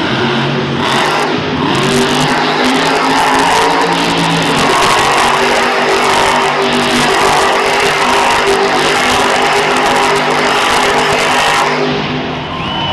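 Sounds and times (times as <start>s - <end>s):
monster truck engine revving: 0.0s - 12.9s.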